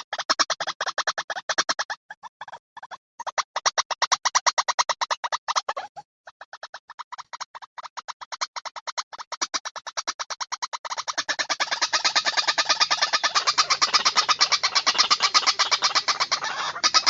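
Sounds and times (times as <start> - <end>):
bird call of harsh notes: 11.0 - 17.0.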